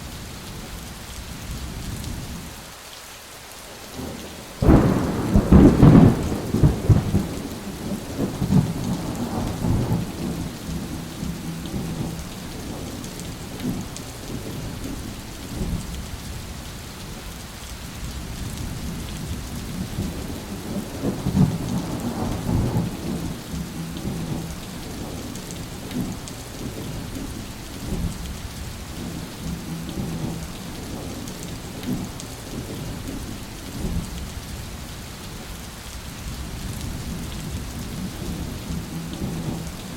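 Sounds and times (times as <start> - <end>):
heavy rain: 0.0 - 39.9
thunder rumbling: 4.0 - 16.1, 18.2 - 34.5, 36.4 - 39.9.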